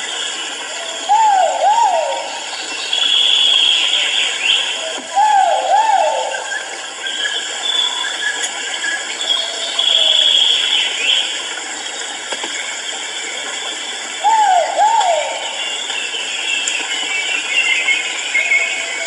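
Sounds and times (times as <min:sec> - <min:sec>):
bird calling loud arched notes: 0:00.7 - 0:08.4, 0:14.2 - 0:16.2.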